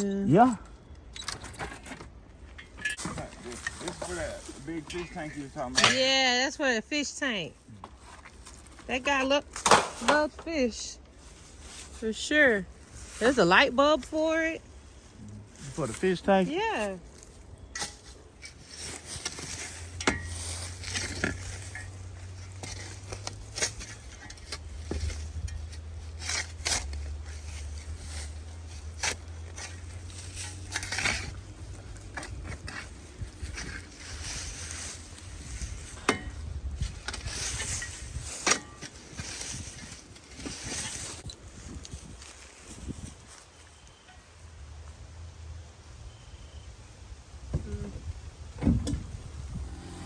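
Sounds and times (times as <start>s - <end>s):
items knocking clinking and scraping: 7.8s - 10.6s.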